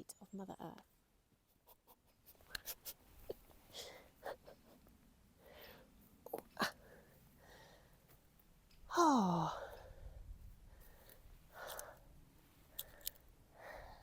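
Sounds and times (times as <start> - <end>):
soft breaths: 2.3 - 8.4, 9.4 - 14.0
person sighing: 8.9 - 9.9.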